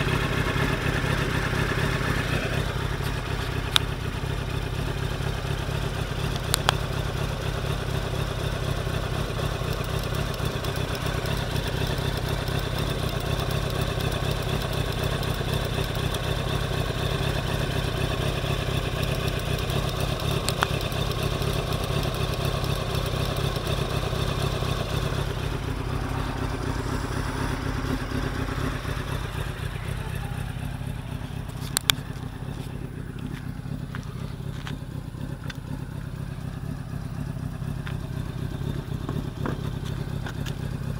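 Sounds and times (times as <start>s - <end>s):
motorcycle engine idling: 0.0s - 40.9s
sharp clicks: 6.3s - 6.8s.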